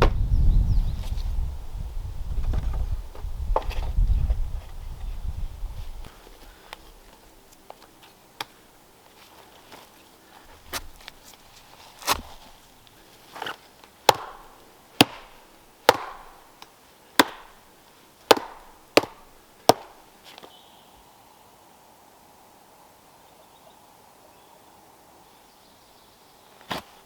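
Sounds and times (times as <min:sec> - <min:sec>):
hand tool striking wood: 0:10.6 - 0:11.2, 0:12.0 - 0:12.6, 0:14.1 - 0:17.6, 0:18.3 - 0:20.0.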